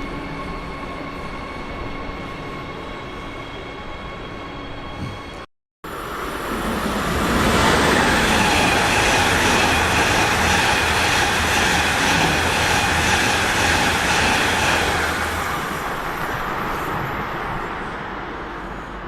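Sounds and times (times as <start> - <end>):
train wheels rushing on rails: 5.9 - 19.0.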